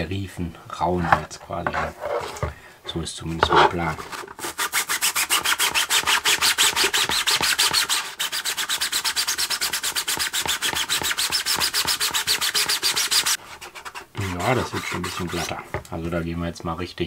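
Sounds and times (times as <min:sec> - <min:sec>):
sanding sponge scuffing plastic: 0:03.4 - 0:16.2.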